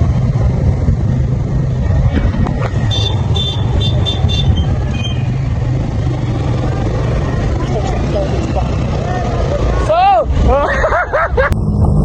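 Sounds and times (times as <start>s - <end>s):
wind noise on microphone: 0.0s - 5.2s
motorcycle engine rumble: 0.0s - 12.0s.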